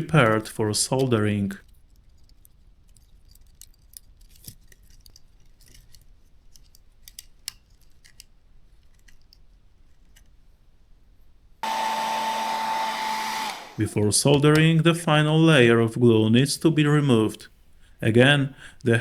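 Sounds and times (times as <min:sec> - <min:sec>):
small parts clicking: 0:00.3 - 0:10.4
hair dryer blowing: 0:11.6 - 0:14.2.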